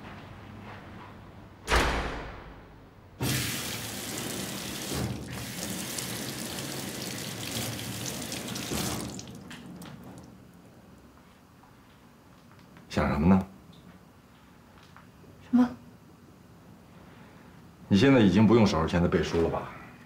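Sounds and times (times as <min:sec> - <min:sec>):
tap water running onto hands: 0:03.3 - 0:10.5.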